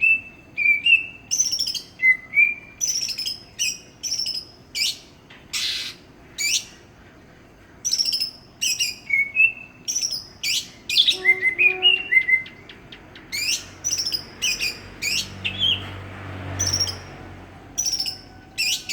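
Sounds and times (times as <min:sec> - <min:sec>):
bird whistling song: 0:00.0 - 0:06.8, 0:07.8 - 0:15.8, 0:17.8 - 0:18.9
bird chattering notes: 0:09.9 - 0:15.4.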